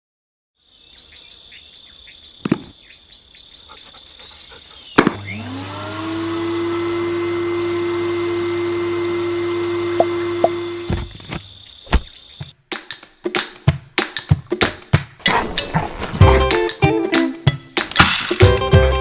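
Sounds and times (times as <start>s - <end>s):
vacuum cleaner motor running: 5.0s - 11.2s.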